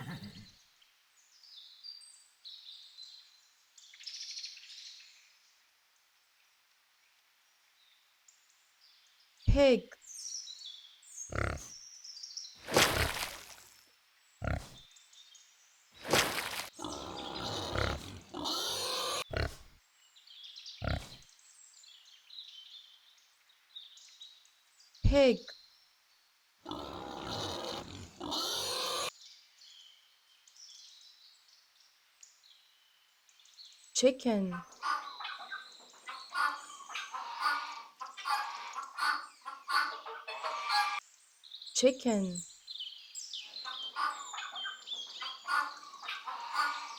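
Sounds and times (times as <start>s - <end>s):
chickens clucking: 0.0s - 0.2s, 34.8s - 41.0s, 43.7s - 46.9s
pig grunting: 0.0s - 0.5s, 11.3s - 11.7s, 12.6s - 13.7s, 14.4s - 14.8s, 16.0s - 19.7s, 20.8s - 21.2s, 26.7s - 29.1s.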